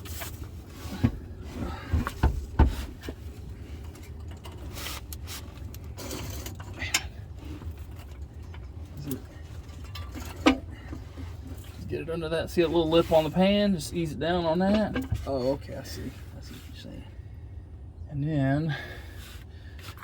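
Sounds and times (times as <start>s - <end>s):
transmission clunking and knocking: 0.0s - 12.3s, 14.5s - 15.8s
low steady hum: 0.0s - 20.0s.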